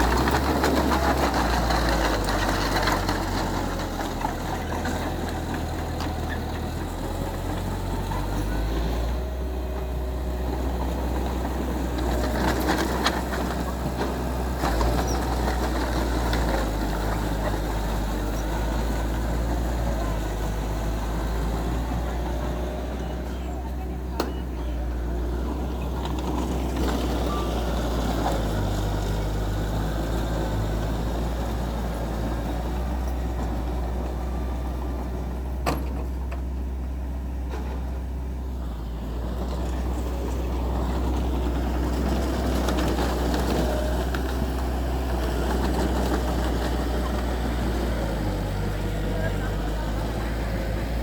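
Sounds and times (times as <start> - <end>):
heavy diesel engine under load: 0.0 - 51.0.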